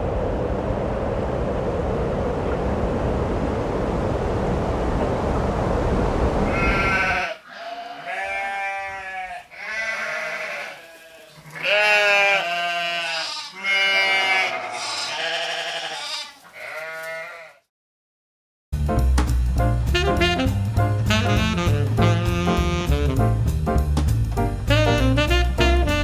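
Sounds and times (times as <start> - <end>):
rushing noise: 0.0 - 7.1
livestock bleating: 6.5 - 17.6.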